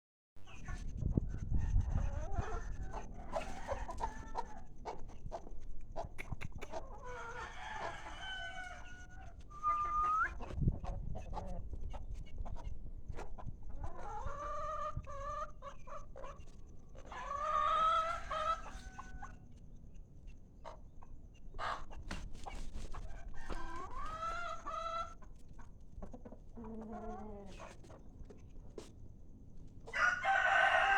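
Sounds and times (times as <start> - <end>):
chickens clucking: 0.4 - 30.9
sharp clicks: 6.2 - 6.8
rooster crowing: 7.2 - 9.0, 29.9 - 30.9.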